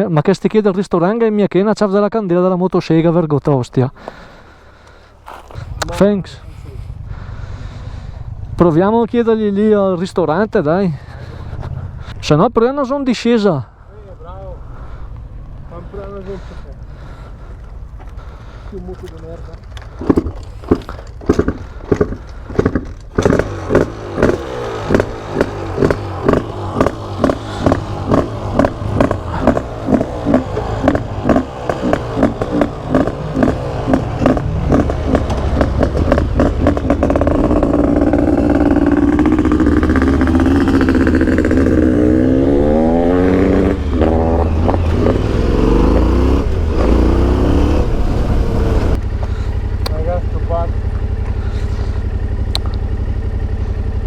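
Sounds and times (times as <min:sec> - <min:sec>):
motorcycle engine running: 0:13.7 - 0:54.0.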